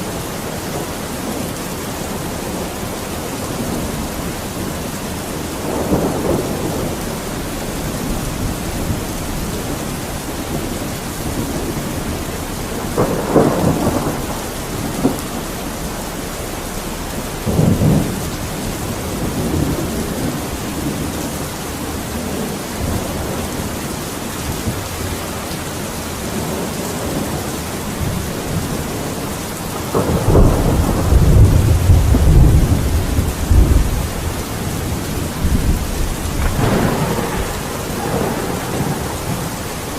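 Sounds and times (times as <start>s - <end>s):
heavy rain: 0.0s - 39.9s
rolling thunder: 0.0s - 39.9s.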